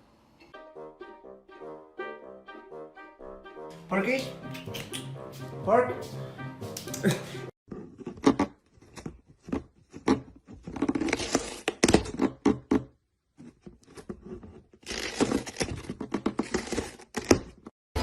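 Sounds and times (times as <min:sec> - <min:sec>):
sharp clicks and taps: 0:04.2 - 0:05.2.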